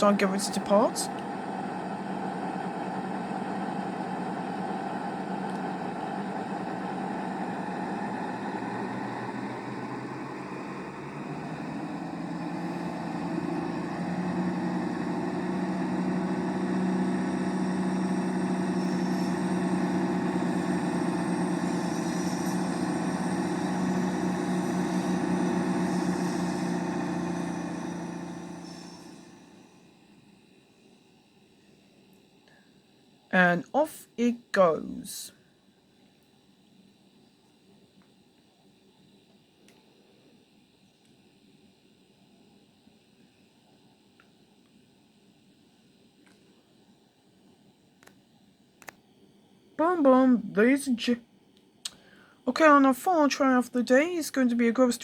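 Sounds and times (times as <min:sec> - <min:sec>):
diesel train engines droning: 0:00.0 - 0:35.4, 0:49.7 - 0:51.2, 0:51.9 - 0:55.0.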